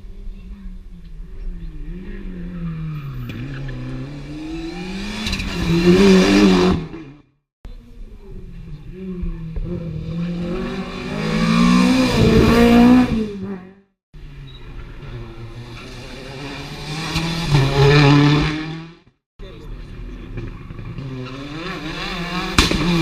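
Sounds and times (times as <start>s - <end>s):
rally car approaching: 0.1s - 23.0s
rally car passing at speed: 1.8s - 7.2s, 9.0s - 19.0s, 19.9s - 23.0s.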